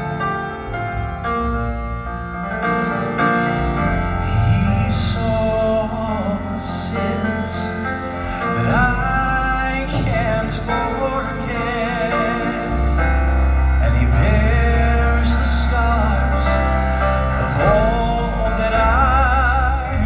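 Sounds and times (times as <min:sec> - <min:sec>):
band accompaniment: 0:00.0 - 0:20.0
vocal quartet singing slow song: 0:04.0 - 0:20.0.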